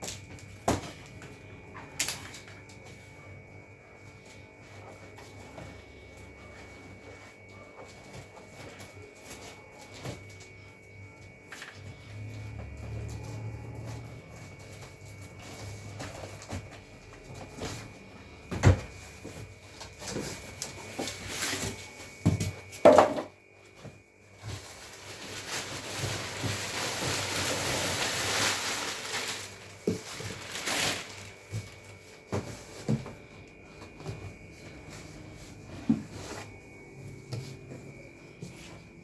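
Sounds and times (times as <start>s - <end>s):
packaging rustling: 24.5s - 32.4s.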